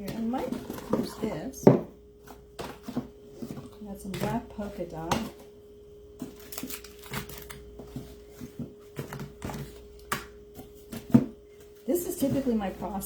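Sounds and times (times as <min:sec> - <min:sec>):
faint steady hum: 0:00.0 - 0:13.0
packaging taps clicks and crinkles: 0:06.2 - 0:11.2.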